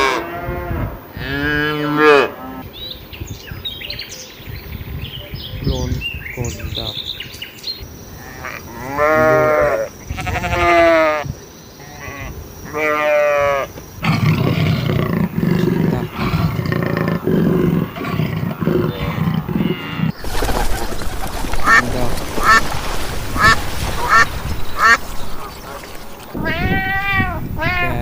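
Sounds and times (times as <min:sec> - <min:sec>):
sheep bleating: 0:08.2 - 0:11.2
rough low cheetah sound: 0:14.0 - 0:28.0
duck quacking: 0:19.9 - 0:22.8, 0:23.4 - 0:28.0.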